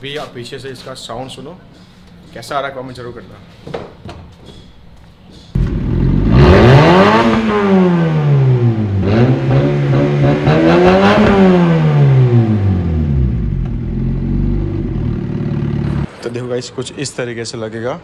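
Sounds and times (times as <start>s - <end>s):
engine revving through small exhaust: 5.6s - 16.1s.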